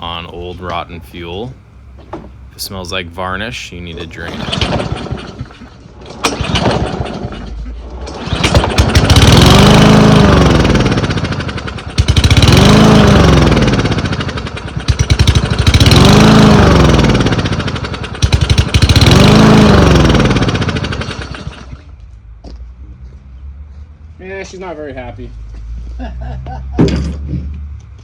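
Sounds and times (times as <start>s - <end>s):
lawn mower engine surging: 0.0s - 21.9s.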